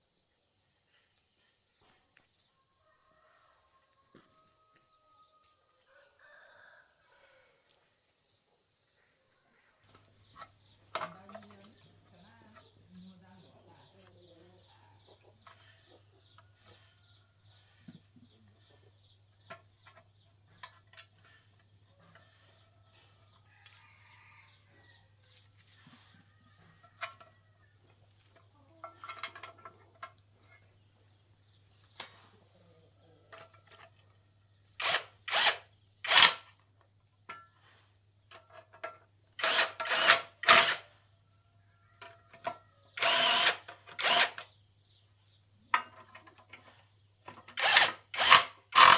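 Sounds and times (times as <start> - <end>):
tool handling clicks and knocks: 9.9 - 11.8, 26.8 - 27.3, 27.9 - 30.4, 33.3 - 34.1, 38.3 - 40.8, 45.7 - 48.9
power tool bursts: 34.8 - 36.5, 39.4 - 40.9, 43.0 - 44.5, 47.5 - 48.9.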